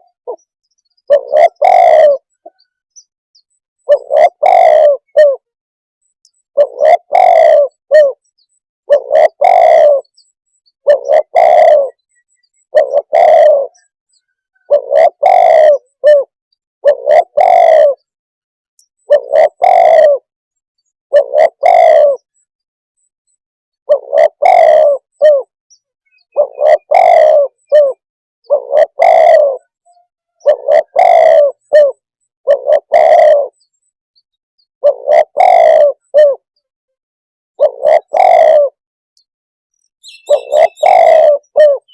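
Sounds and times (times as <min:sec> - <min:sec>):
dove cooing: 0:00.0 - 0:02.7, 0:03.8 - 0:05.5, 0:06.5 - 0:08.2, 0:08.9 - 0:10.2, 0:10.8 - 0:13.9, 0:14.5 - 0:18.2, 0:19.0 - 0:20.3, 0:21.1 - 0:22.4, 0:23.8 - 0:25.5, 0:26.1 - 0:33.6, 0:34.8 - 0:36.5, 0:37.6 - 0:38.8, 0:40.0 - 0:41.9.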